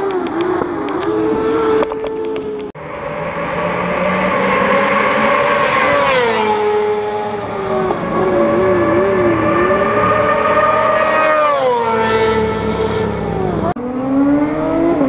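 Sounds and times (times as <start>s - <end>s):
racing motorcycle engines revving: 0.0s - 15.0s.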